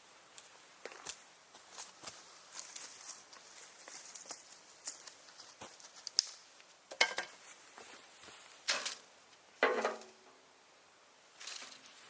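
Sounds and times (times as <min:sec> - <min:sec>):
hard objects knocking and clattering: 0:09.6 - 0:10.2.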